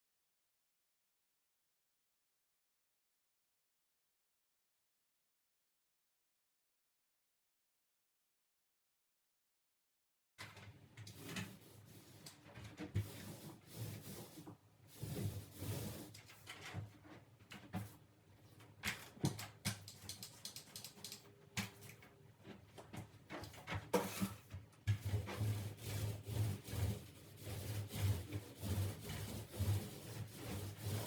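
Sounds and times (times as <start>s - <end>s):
paint roller rubbing on wall: 11.1s - 18.0s, 21.7s - 31.0s.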